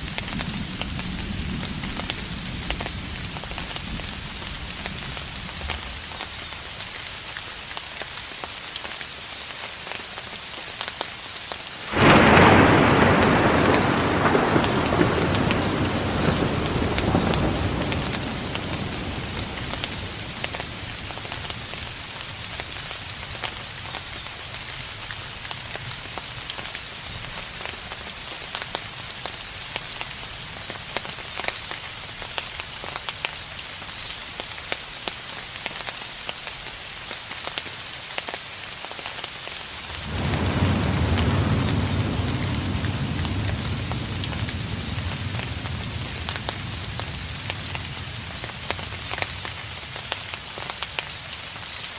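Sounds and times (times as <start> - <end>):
rain drops ticking: 0.0 - 51.9
distant thunder rumbling: 11.9 - 22.6, 39.8 - 50.4.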